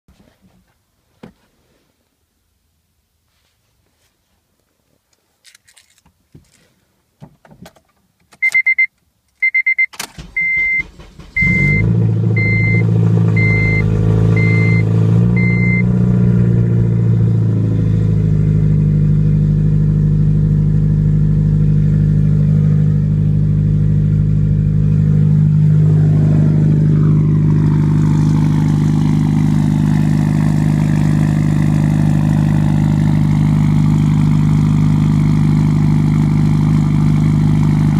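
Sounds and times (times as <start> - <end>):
car engine idling: 10.1 - 37.9
dashboard chime beeping: 11.4 - 15.8.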